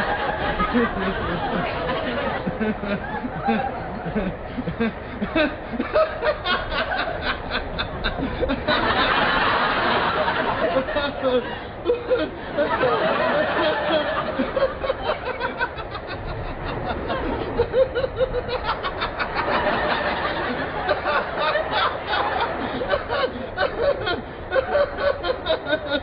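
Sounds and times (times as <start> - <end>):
audience laughing: 0.0 - 26.0.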